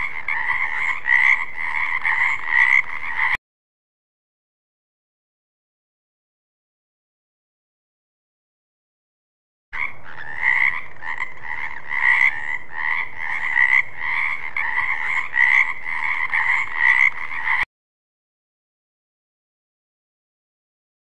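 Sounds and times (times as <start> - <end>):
frog croaking: 0.0 - 3.4, 9.8 - 17.6.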